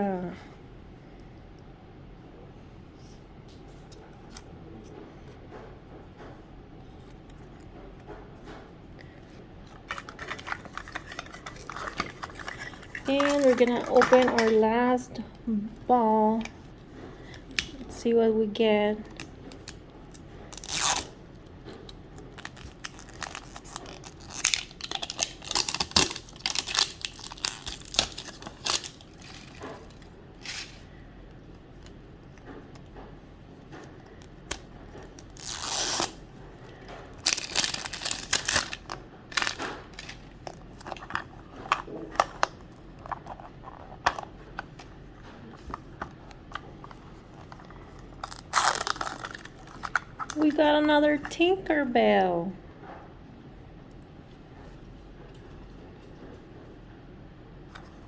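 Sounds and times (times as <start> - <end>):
plastic wrapping tearing and crinkling: 9.8 - 14.7, 20.4 - 21.2, 22.2 - 30.9, 34.5 - 36.2, 37.2 - 50.5.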